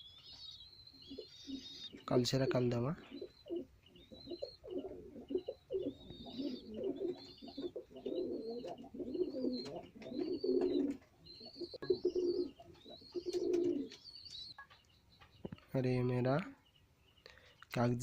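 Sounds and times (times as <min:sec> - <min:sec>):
pigeons cooing: 0:01.0 - 0:14.6.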